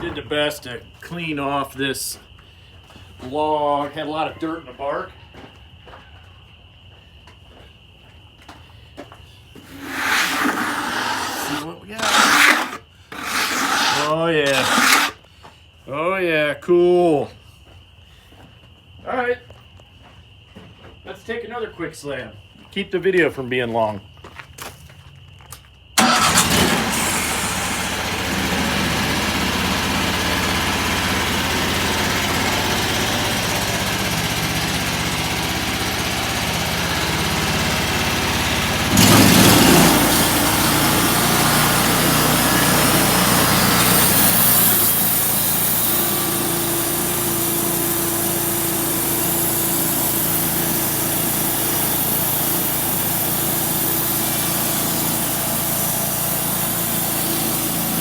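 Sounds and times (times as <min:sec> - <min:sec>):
saw blade hissing through log: 0:09.6 - 0:15.2, 0:26.0 - 0:29.1, 0:38.9 - 0:58.0
sawmill engine running: 0:09.6 - 0:15.2, 0:26.0 - 0:58.0.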